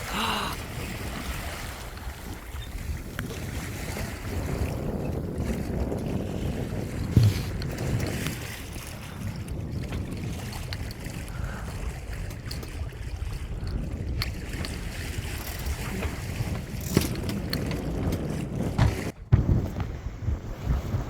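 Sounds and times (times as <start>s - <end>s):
wind buffeting microphone: 0.0s - 21.0s
sharp knock: 7.2s - 7.6s.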